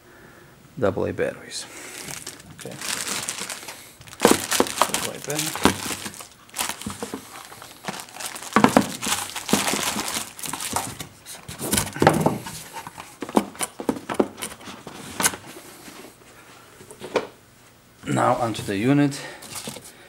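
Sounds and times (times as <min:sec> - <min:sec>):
packaging crinkling and rustling: 0:01.8 - 0:15.4, 0:19.4 - 0:19.9.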